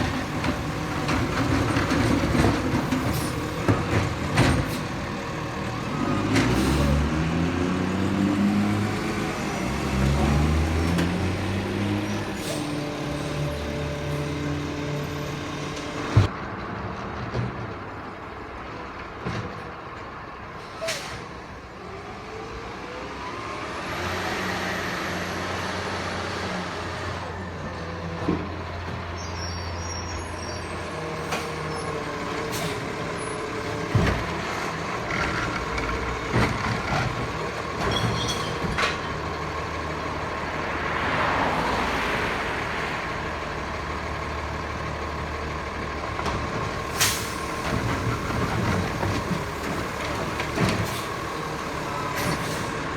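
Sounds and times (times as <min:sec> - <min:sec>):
garbage truck engine revving: 0:00.0 - 0:16.3
air brake hiss: 0:20.7 - 0:21.3, 0:32.5 - 0:32.9, 0:46.9 - 0:47.7, 0:50.8 - 0:52.9.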